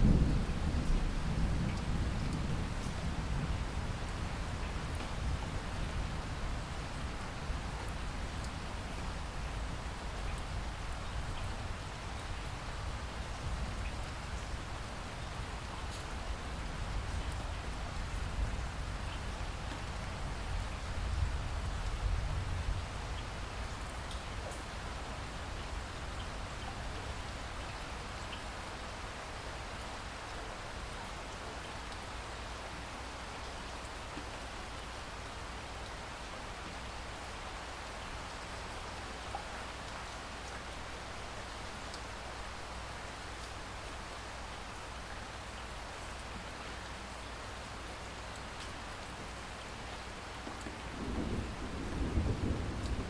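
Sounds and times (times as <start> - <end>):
thunder rumbling: 0.0 - 3.7, 50.7 - 53.0
steady rain hiss: 0.0 - 53.0.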